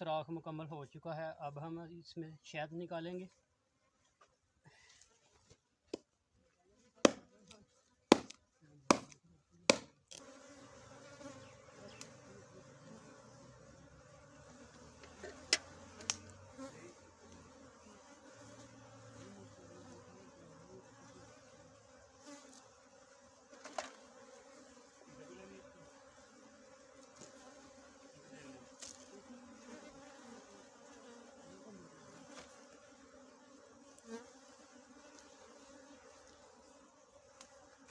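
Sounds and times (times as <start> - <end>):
honey bees buzzing: 9.7 - 37.9.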